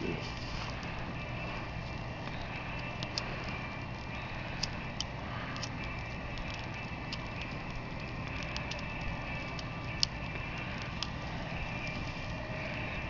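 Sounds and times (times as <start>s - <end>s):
kindling crackling and popping: 0.0s - 13.0s.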